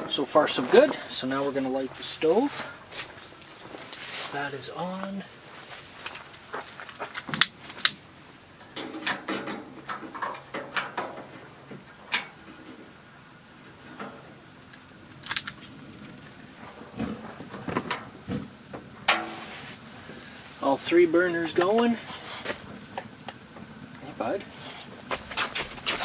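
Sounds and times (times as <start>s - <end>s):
heater control clicks and knocks: 8.6s - 12.6s.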